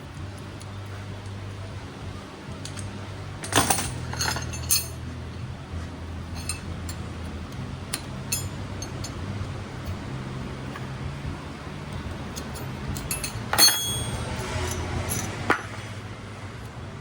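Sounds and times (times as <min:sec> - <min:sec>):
low steady hum: 0:00.0 - 0:17.0
metal tools clinking: 0:02.5 - 0:05.3, 0:06.2 - 0:10.0, 0:11.9 - 0:15.8.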